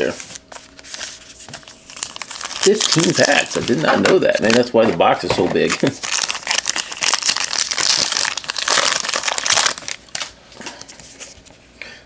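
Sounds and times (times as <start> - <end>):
rustling and handling cards: 0.0 - 11.6
wrapper crinkling and tearing: 0.3 - 4.8, 5.6 - 10.4.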